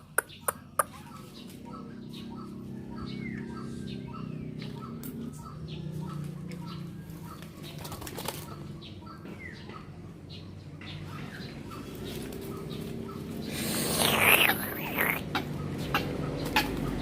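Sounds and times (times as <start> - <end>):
high bird chirps: 12.5 - 17.0
bird calling repeated notes: 13.5 - 17.0.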